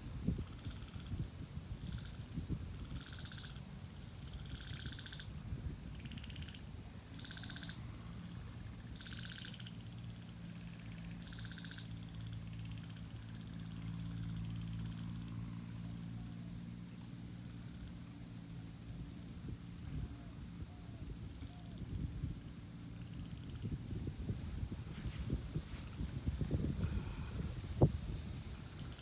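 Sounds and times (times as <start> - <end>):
frogs calling with trills: 0.4 - 25.1
low steady hum: 5.2 - 29.0.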